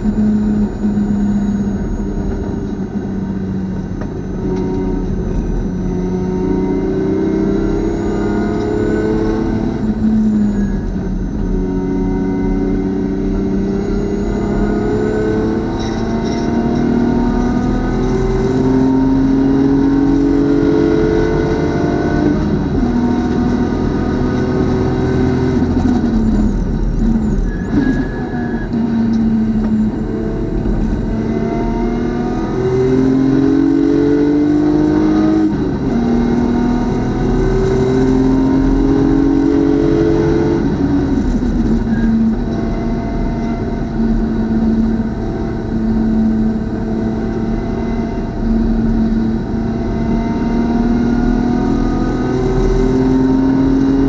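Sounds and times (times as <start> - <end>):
race car engine revving through gears: 0.0 - 54.0.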